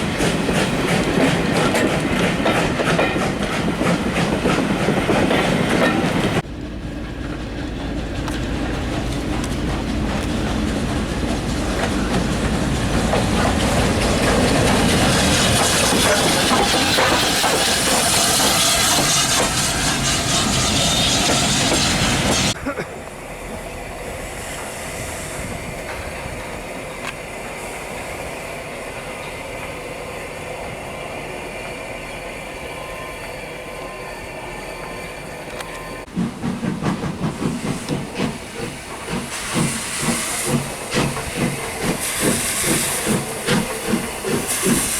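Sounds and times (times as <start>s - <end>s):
steam train rumble and wheel clatter: 0.0s - 44.9s
hiss of steam: 11.7s - 34.0s, 36.0s - 44.9s.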